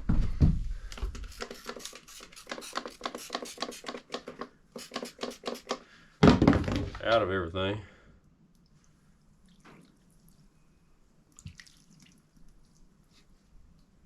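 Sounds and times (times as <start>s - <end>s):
spray bottle squirting: 1.0s - 5.8s.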